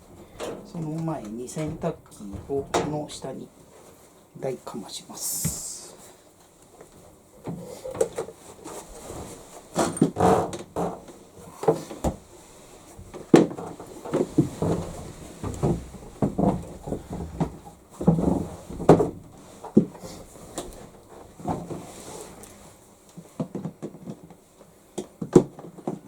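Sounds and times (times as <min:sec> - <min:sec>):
washing machine knocks and scraping: 0:00.4 - 0:03.2.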